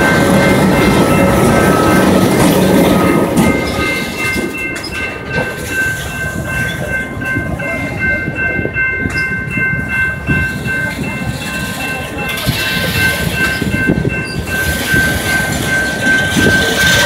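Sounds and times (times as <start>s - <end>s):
diesel locomotive rumble: 0.0s - 17.0s
high-pitched ringing tones: 0.0s - 17.0s
wheels clacking over rail joints: 10.4s - 17.0s.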